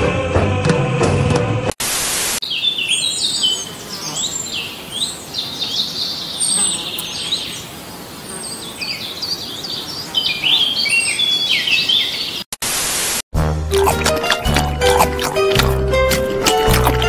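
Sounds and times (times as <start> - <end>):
small birds chirping and singing: 2.4 - 12.5.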